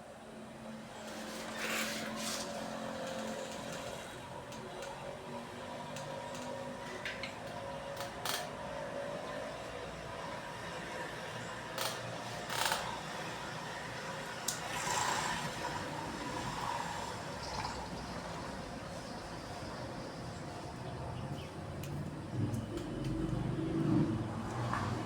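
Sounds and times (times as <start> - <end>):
clicks and knocks of tools: 5.9 - 8.6, 11.8 - 13.0.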